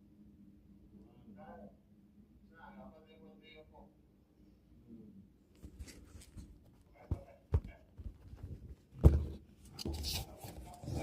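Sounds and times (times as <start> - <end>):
scuffing and rustling: 5.6 - 11.0
sharp knocks and thuds: 7.0 - 10.0.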